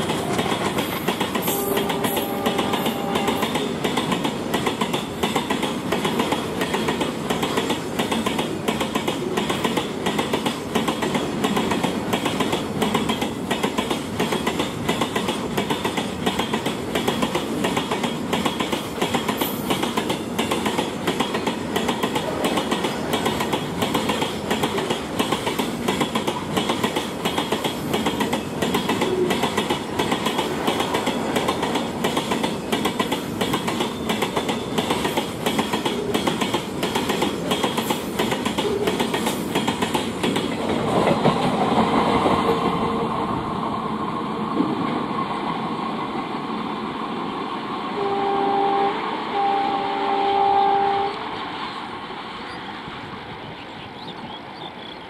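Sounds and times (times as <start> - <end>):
steady train rumble: 0.0 - 55.0
diesel locomotive horn: 1.4 - 3.7, 48.0 - 51.3.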